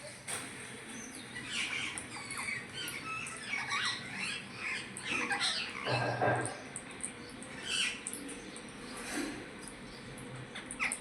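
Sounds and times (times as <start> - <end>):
parrot squawking and chirping: 1.4 - 6.2.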